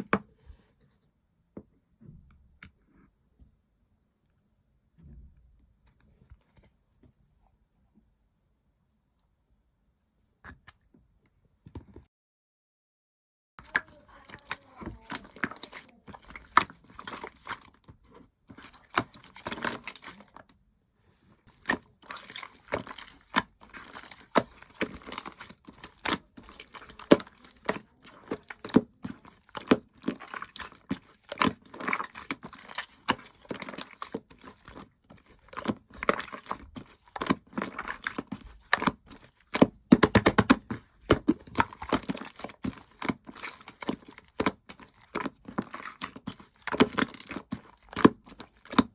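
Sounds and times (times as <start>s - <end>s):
slime wet pops and crackles: 21.5s - 48.9s.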